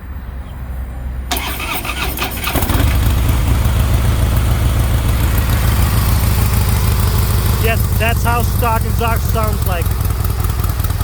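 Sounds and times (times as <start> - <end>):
motorcycle starter cranking: 1.3 - 3.6
motorcycle engine idling: 1.3 - 11.0.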